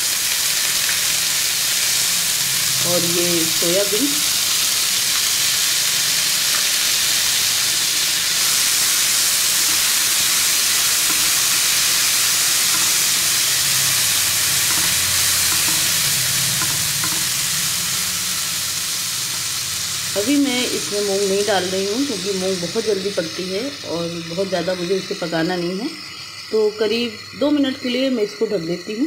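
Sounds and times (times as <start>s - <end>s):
beans sizzling in hot oil: 0.0s - 29.0s
spatula stirring in pan: 8.4s - 17.5s.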